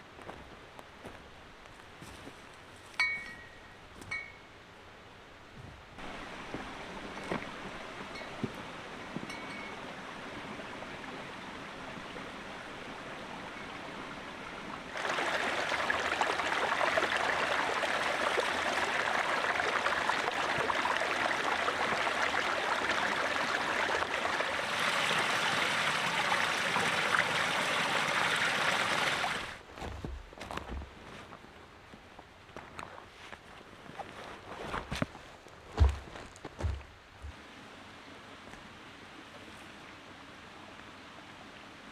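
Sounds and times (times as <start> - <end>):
running water rushing: 5.6 - 30.8.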